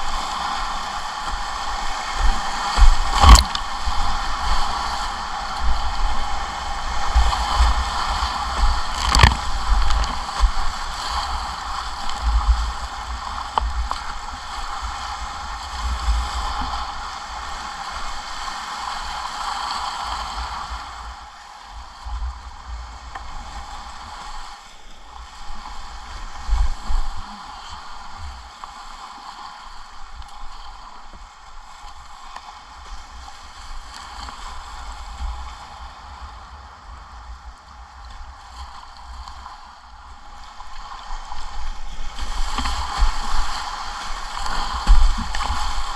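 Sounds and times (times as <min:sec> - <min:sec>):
whitewater rushing: 0:00.0 - 0:21.8.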